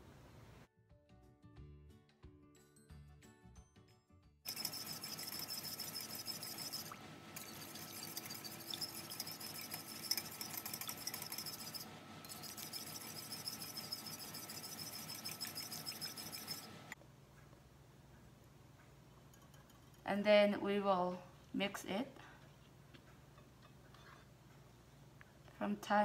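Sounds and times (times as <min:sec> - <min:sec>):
wire whisk clicking against glass bowl: 0:04.5 - 0:16.7.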